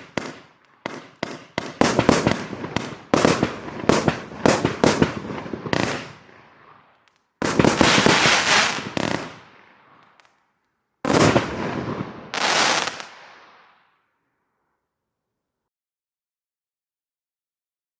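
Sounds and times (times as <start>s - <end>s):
firework crackling tail: 0.0s - 6.4s, 7.4s - 10.3s, 11.1s - 13.9s.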